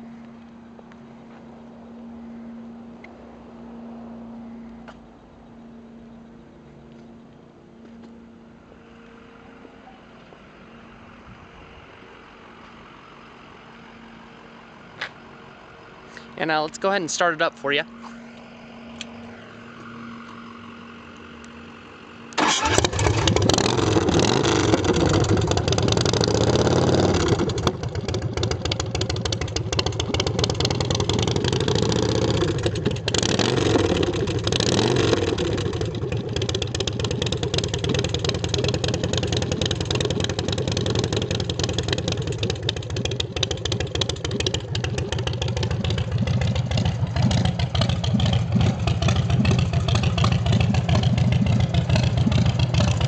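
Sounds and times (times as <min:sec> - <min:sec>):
motorcycle engine revving: 0:17.9 - 0:53.0
motorcycle engine idling loudly: 0:22.4 - 0:53.0.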